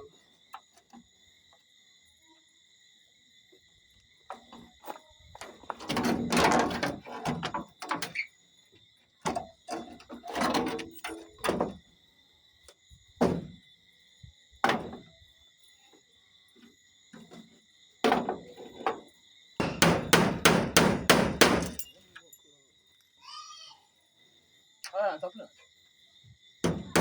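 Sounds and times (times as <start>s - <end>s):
night insects trilling: 0.0s - 27.0s
knocks and bangs of hand work: 13.2s - 13.6s, 14.6s - 15.1s, 18.0s - 19.0s, 19.6s - 21.8s, 26.6s - 27.0s.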